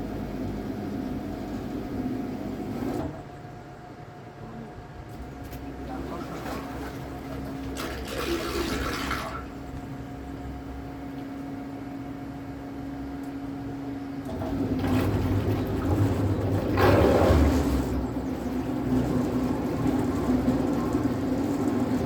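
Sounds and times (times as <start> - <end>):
steady motor hum: 0.0 - 22.0
water splashing against hull: 5.4 - 9.7.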